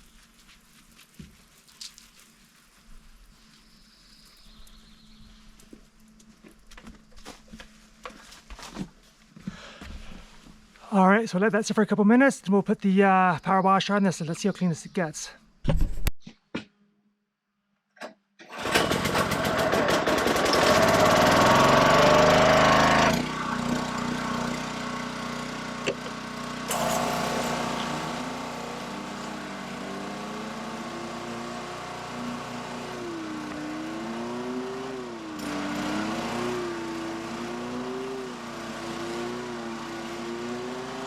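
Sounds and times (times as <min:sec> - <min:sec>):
pressure washer engine running: 0:18.6 - 0:41.0.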